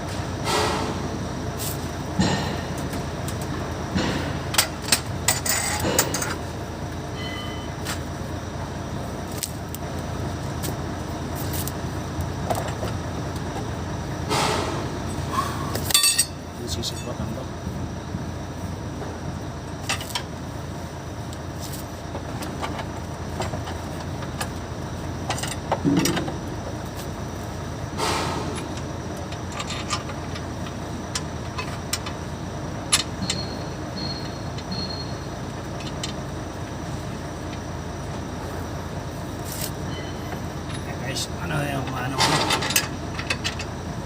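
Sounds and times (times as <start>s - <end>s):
steady low rumble: 0.0s - 33.8s
heavy metal clunk: 0.1s - 1.2s, 2.0s - 6.5s, 14.2s - 16.4s, 25.3s - 26.7s, 27.9s - 30.5s, 42.1s - 43.7s.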